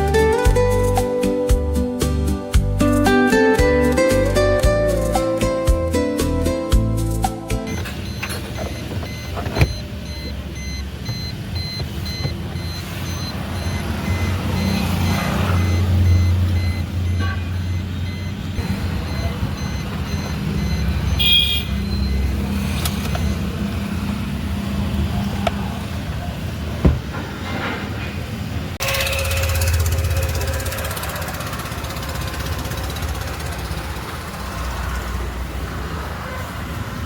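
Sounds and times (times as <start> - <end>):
short beep: 7.7 - 22.2
vehicle engine running: 7.8 - 27.2, 28.8 - 36.0.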